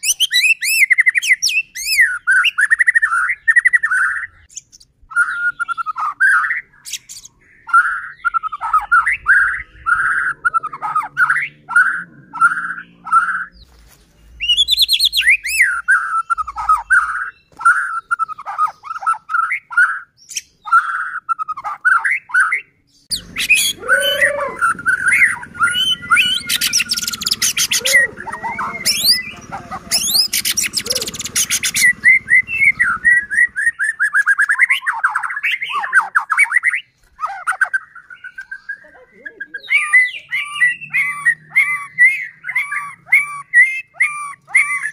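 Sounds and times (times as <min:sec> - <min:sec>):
bird singing whistled phrases: 0:00.0 - 0:13.7, 0:14.4 - 0:44.9.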